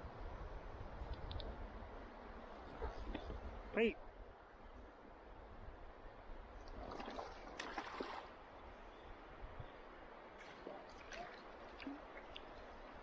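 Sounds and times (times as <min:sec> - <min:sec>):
water splashing and gurgling: 0:06.6 - 0:08.4, 0:10.4 - 0:13.0.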